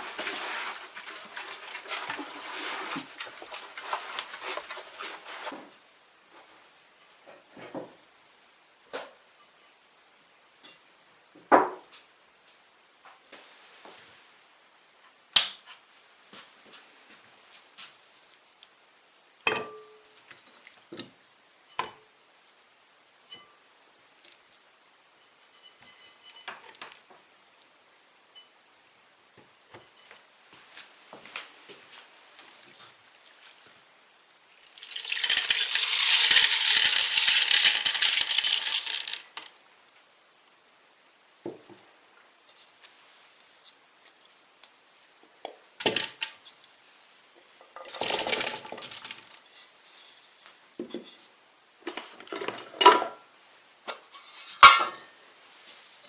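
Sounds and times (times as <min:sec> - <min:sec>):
hard objects knocking and clattering: 0:34.8 - 0:39.5.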